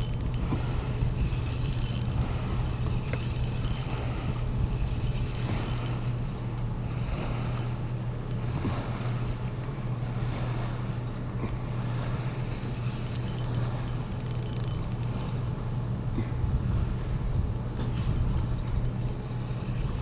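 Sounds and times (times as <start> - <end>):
boat motor humming: 0.0 - 20.0
faint high clicks: 1.3 - 4.1, 4.7 - 6.5, 12.6 - 15.5, 17.7 - 19.9.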